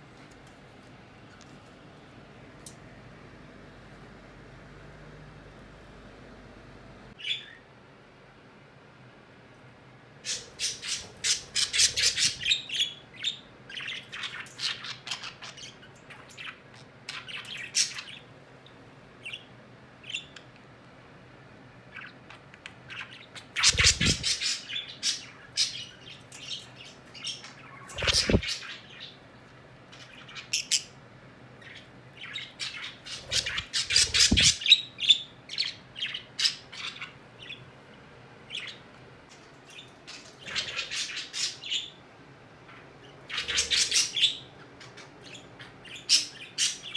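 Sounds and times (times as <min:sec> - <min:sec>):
pet birds chirping and squawking: 0:07.2 - 0:07.6, 0:10.2 - 0:18.3, 0:21.9 - 0:29.3, 0:29.9 - 0:31.0, 0:31.6 - 0:42.0, 0:42.7 - 0:46.9.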